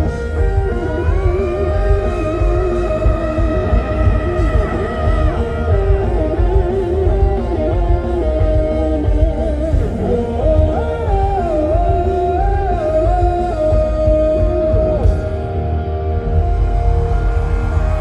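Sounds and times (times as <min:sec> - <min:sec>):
live rock band playing: 0:00.0 - 0:18.0
sliding lead guitar line: 0:00.0 - 0:18.0.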